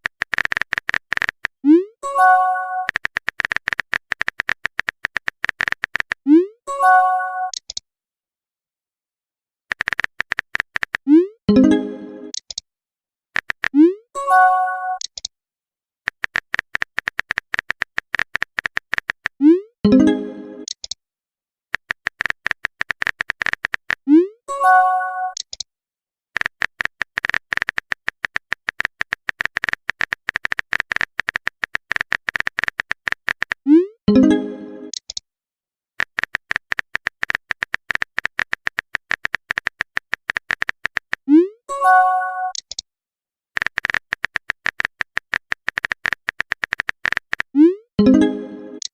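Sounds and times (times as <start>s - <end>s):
phone keyboard typing clicks: 0.0s - 1.6s, 2.8s - 6.2s, 7.4s - 7.8s, 9.7s - 11.2s, 13.4s - 13.9s, 14.9s - 15.3s, 16.1s - 19.4s, 20.6s - 21.0s, 21.8s - 24.1s, 25.3s - 25.6s, 26.4s - 35.2s, 36.0s - 41.3s, 42.5s - 42.8s, 43.6s - 48.9s
notification chime: 11.5s - 12.3s, 34.1s - 34.9s, 41.7s - 42.6s, 48.0s - 48.8s.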